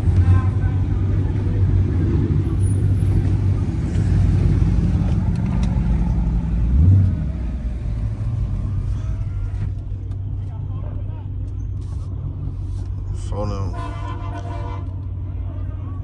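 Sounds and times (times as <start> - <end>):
engine rev: 0.0 - 9.9
car engine rumbling: 0.0 - 16.0.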